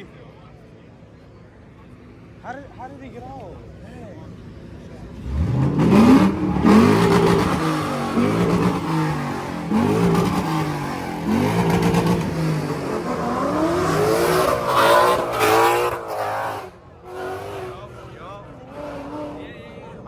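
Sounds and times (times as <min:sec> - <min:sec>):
car engine revving: 0:03.0 - 0:20.0.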